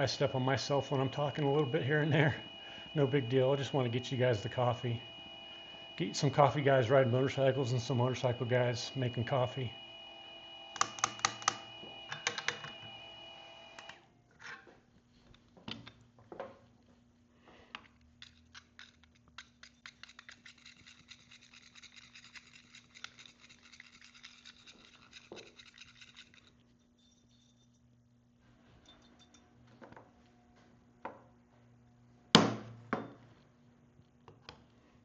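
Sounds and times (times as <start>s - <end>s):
coffee grinder motor whining: 0.4s - 6.4s.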